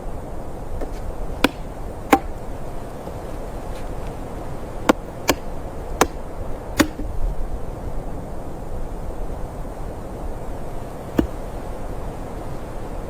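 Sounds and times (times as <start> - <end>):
low background noise: 0.0 - 13.0
sharp chopping knocks: 0.8 - 2.4, 4.9 - 7.2, 11.2 - 11.5.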